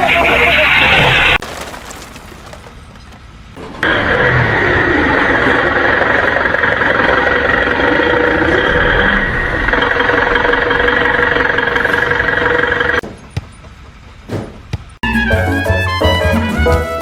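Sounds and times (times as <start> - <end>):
engine running with whine: 2.3 - 15.3
short knocks: 13.0 - 15.0
latin-style music: 15.0 - 17.0.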